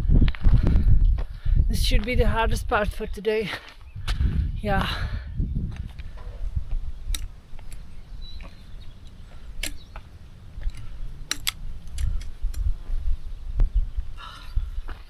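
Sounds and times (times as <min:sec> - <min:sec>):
wind rumbling on microphone: 0:00.0 - 0:15.0
sharp clicks and taps: 0:06.7 - 0:12.7.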